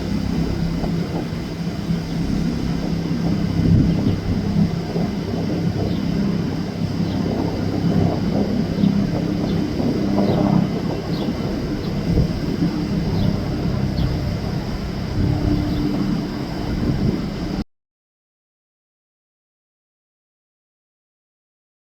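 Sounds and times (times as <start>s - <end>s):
boat engines droning: 0.0s - 17.6s.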